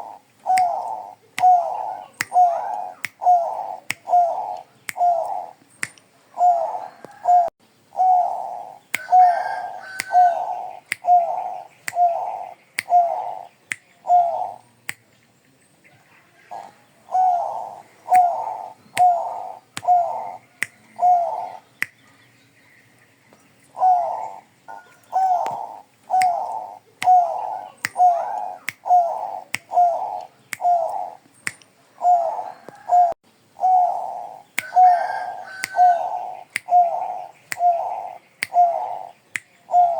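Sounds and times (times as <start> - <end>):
dove cooing: 0.0 - 5.6, 6.3 - 14.6, 16.2 - 22.3, 23.7 - 31.2, 31.9 - 39.9.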